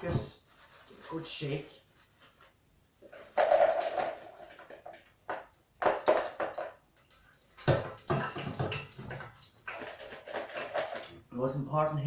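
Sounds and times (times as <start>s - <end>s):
chips rattling in fryer basket: 3.2s - 4.8s.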